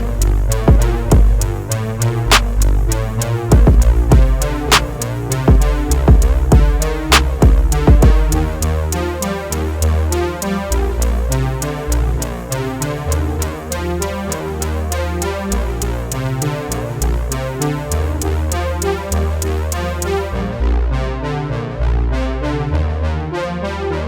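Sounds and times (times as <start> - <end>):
drum machine beat: 0.0 - 8.7
synthesizer notes: 0.0 - 21.0
bass line: 0.0 - 24.0.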